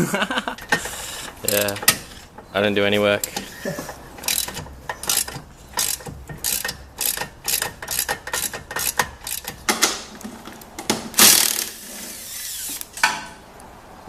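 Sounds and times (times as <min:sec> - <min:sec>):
socket ratchet clicking: 0:04.2 - 0:09.7.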